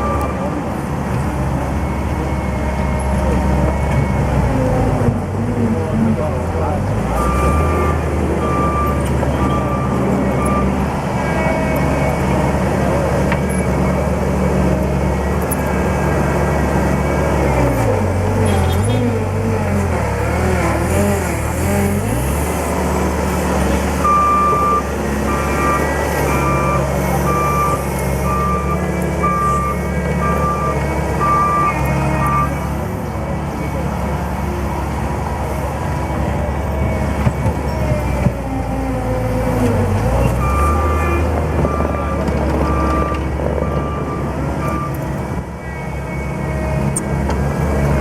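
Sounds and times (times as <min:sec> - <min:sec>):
diesel engine running: 0:00.0 - 0:48.0
reversing alarm beeping: 0:07.2 - 0:12.7, 0:24.0 - 0:32.7, 0:40.3 - 0:47.0.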